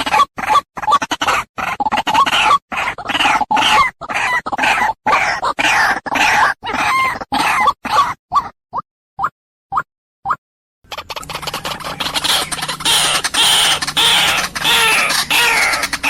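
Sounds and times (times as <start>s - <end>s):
waterhen calling: 10.9s - 16.0s.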